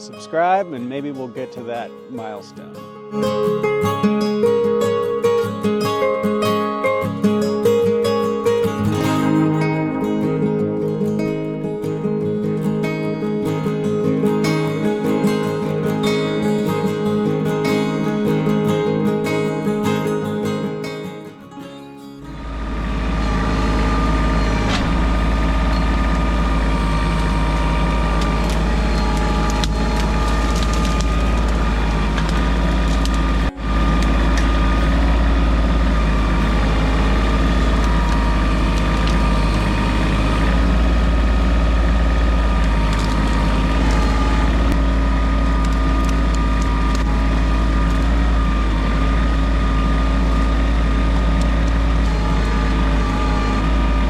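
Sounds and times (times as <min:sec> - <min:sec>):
tractor diesel engine running: 0:22.1 - 0:54.0.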